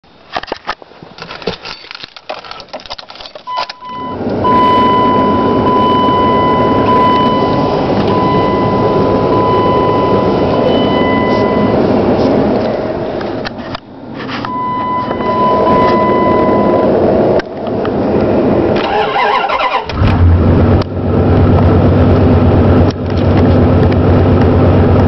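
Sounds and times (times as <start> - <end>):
clicks and rattles: 0.3 - 3.8
truck engine starting and idling: 2.7 - 25.0
steady high-pitched tone: 3.6 - 13.0, 14.4 - 17.4.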